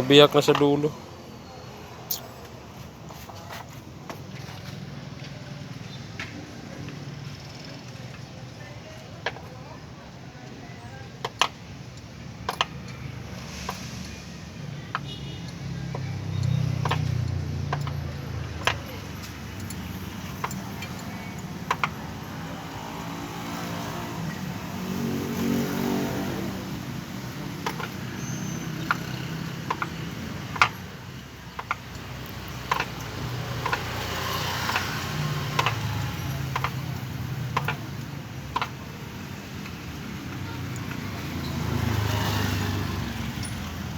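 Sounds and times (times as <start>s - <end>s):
highway traffic rumble: 0.0s - 43.9s
hand tools clicking on metal: 15.5s - 23.1s, 26.7s - 43.9s
vehicle engine passing: 15.5s - 43.9s.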